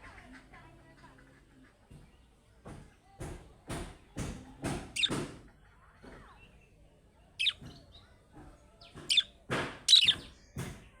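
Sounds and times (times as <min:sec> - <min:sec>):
budgerigar chirping: 0:05.0 - 0:05.2, 0:07.4 - 0:07.6, 0:09.0 - 0:09.3, 0:09.9 - 0:10.2.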